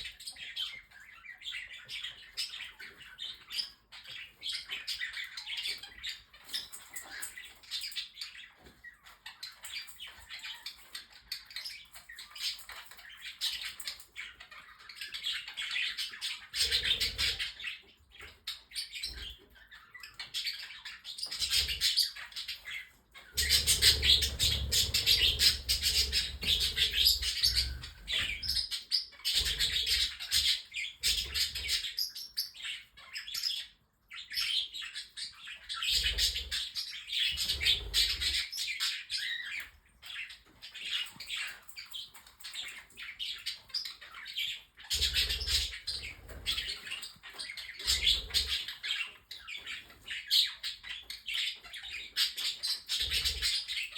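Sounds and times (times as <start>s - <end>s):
pet birds chirping and warbling: 0.0s - 53.9s.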